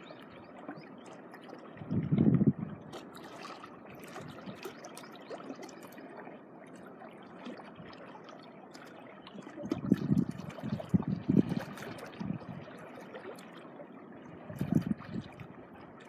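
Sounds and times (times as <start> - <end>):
seawater washing on shoreline: 2.8 - 13.8
small splashes: 2.9 - 13.7.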